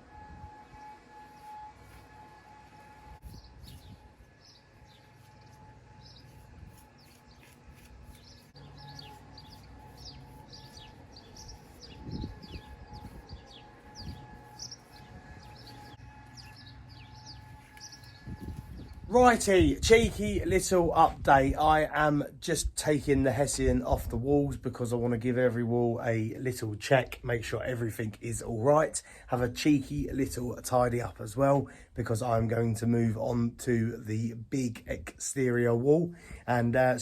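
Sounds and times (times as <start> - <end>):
small birds chirping: 3.2 - 19.1.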